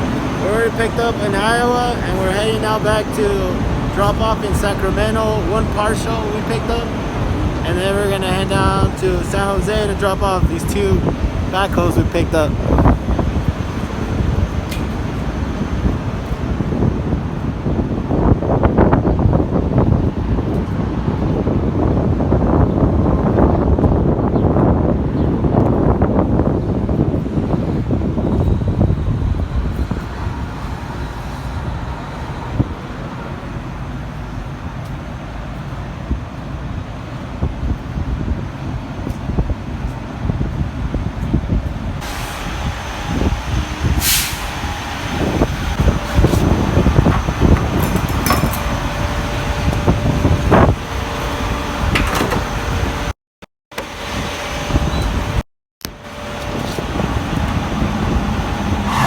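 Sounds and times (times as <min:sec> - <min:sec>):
vehicle engine rumble: 0:00.0 - 0:53.2, 0:53.8 - 0:59.0
knocks and clanks: 0:46.1 - 0:50.7, 0:51.8 - 0:52.9.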